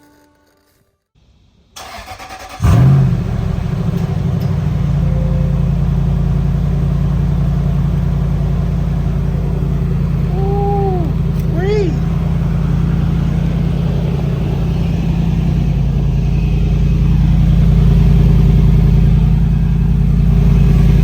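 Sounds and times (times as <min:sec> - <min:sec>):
engine starter cranking: 0:01.8 - 0:04.8
car engine idling: 0:01.8 - 0:21.0.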